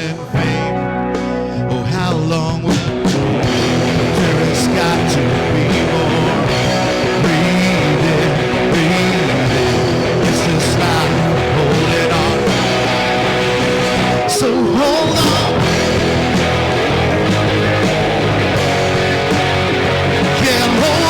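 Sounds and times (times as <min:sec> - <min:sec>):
rock band playing: 0:00.0 - 0:21.0.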